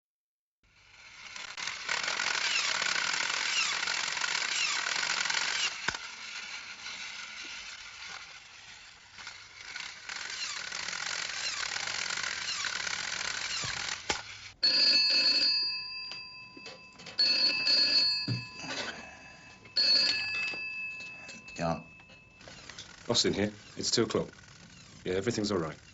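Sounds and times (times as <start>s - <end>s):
telephone ringing: 14.6s - 25.9s.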